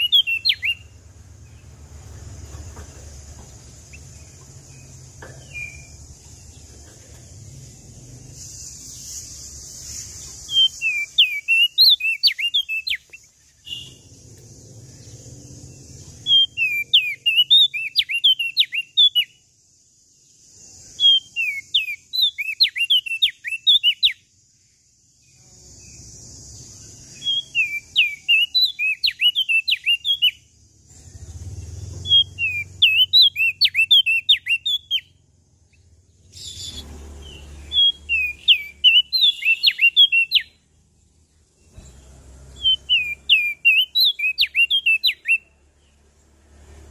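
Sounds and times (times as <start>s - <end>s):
songbird whistling sharp notes: 0.0s - 1.0s, 3.9s - 6.0s, 8.3s - 14.2s, 16.1s - 19.4s, 20.8s - 24.3s, 27.0s - 30.5s, 32.0s - 35.2s, 36.3s - 40.6s, 42.6s - 45.5s
background hiss: 0.0s - 16.6s, 19.0s - 28.7s.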